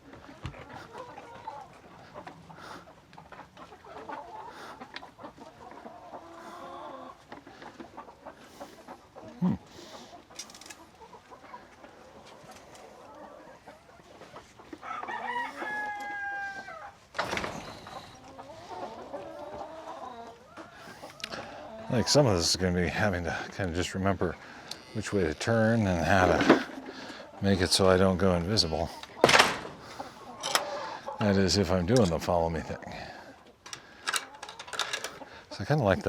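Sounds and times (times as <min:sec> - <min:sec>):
hens clucking: 0:00.0 - 0:36.0
rooster crowing: 0:14.8 - 0:16.8.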